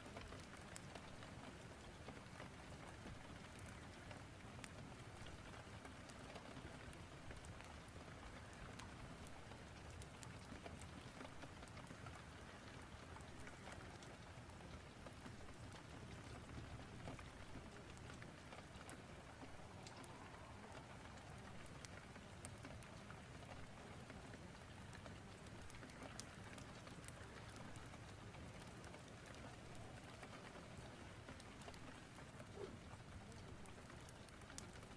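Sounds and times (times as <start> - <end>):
fireplace crackle: 0.0 - 34.9
rain hissing: 16.6 - 32.7.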